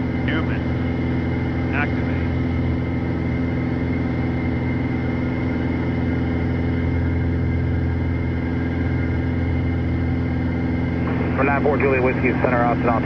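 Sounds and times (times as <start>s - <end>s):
airplane engine drone: 0.0s - 13.0s.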